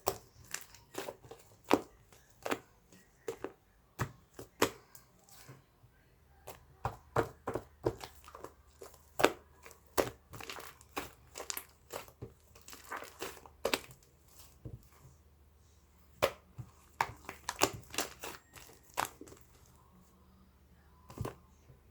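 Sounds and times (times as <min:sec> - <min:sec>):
crinkling and crunching clicks: 0:00.0 - 0:03.6, 0:07.9 - 0:15.0, 0:16.2 - 0:19.8.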